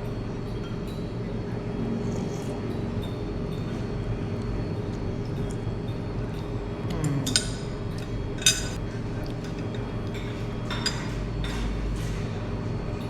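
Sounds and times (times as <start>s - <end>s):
cutlery and dishes clinking: 7.2s - 8.8s, 9.4s - 12.3s.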